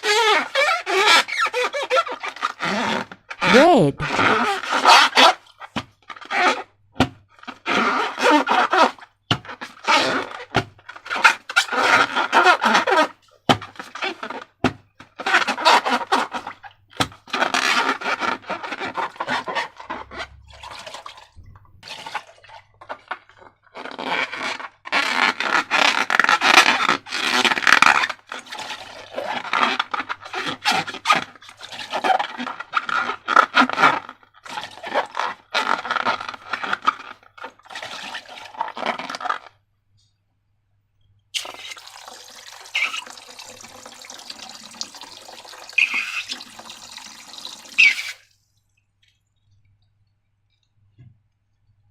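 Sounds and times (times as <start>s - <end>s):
slime squelching by hand: 41.4s - 49.6s.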